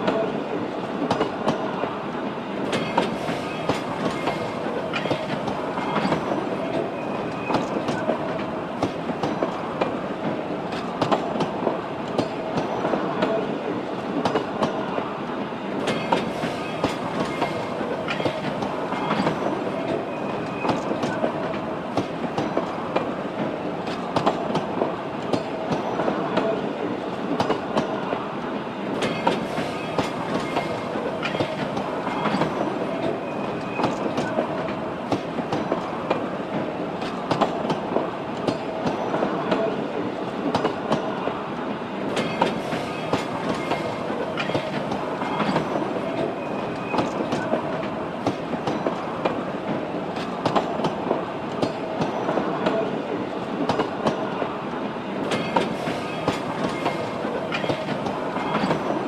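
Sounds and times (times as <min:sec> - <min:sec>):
train wheels clattering over rail joints: 0:02.7 - 0:13.0, 0:15.8 - 0:26.5, 0:29.0 - 0:39.6, 0:42.1 - 0:52.5, 0:55.2 - 0:59.0.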